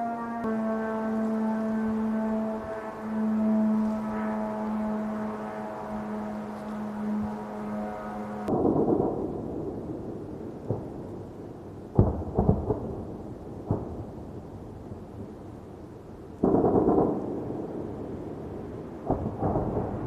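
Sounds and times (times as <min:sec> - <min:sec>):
sharp bang with crackling: 0:08.5 - 0:10.1, 0:11.9 - 0:13.0, 0:16.4 - 0:18.0
rumbling explosion booms: 0:08.5 - 0:11.1, 0:11.9 - 0:14.2, 0:16.4 - 0:20.0.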